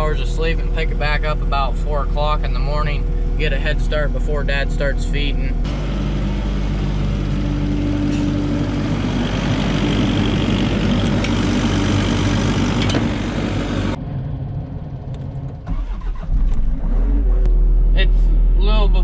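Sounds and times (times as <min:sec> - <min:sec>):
skid loader engine running hard: 0:00.0 - 0:15.1
low engine rumble: 0:00.0 - 0:19.0.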